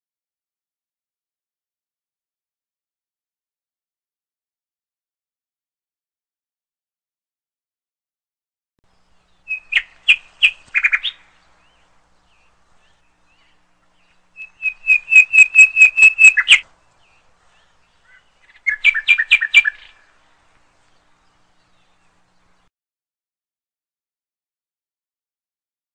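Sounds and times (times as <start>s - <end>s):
bird chirping sharply: 8.9s - 20.1s.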